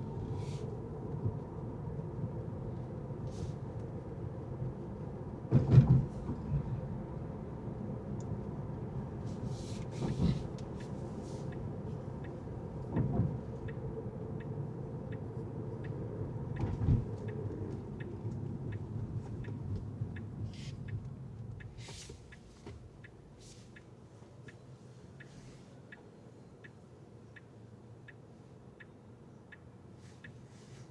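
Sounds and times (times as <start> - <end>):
turn signal clicking: 10.2 - 24.6.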